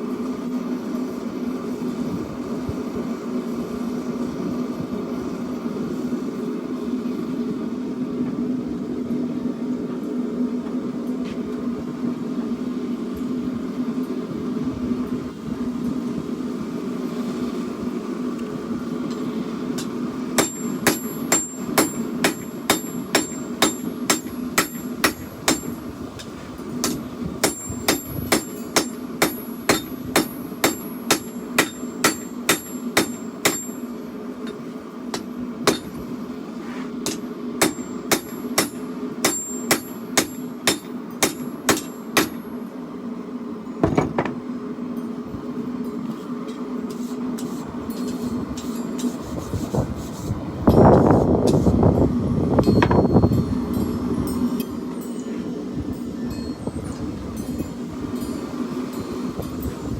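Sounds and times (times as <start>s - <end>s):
steady low hum: 0.0s - 59.9s
hammer striking steel on anvil: 19.8s - 36.0s, 37.0s - 42.5s.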